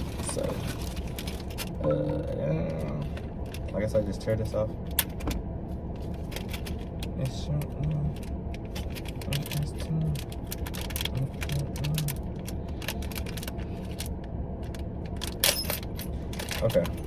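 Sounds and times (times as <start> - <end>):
plastic packaging crinkling: 0.0 - 1.8, 8.2 - 14.1
sharp plastic rustle: 0.0 - 1.8
steady low hum: 0.0 - 17.0.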